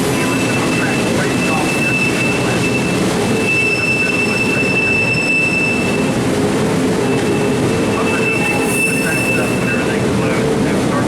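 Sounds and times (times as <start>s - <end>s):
train cars rumbling: 0.0s - 11.0s
train wheels squealing: 0.3s - 6.1s, 7.0s - 10.0s.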